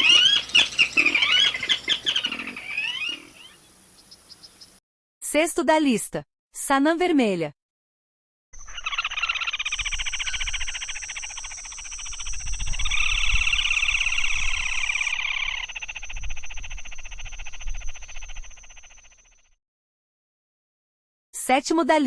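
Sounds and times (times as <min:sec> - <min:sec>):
high-pitched whine: 0:08.6 - 0:19.3
bird rattling trill: 0:08.6 - 0:19.4.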